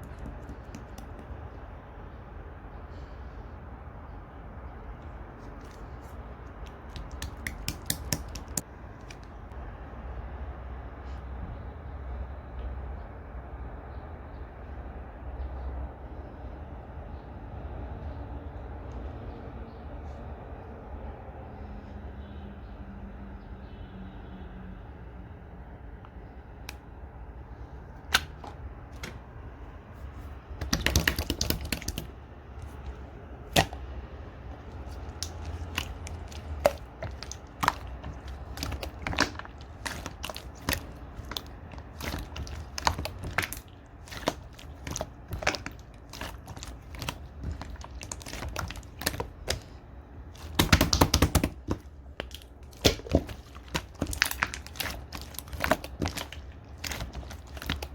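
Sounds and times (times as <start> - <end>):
slime dense crackling: 5.7 - 8.6, 30.6 - 57.9
slime wet clicks and pops: 6.6 - 8.6, 30.6 - 32.1.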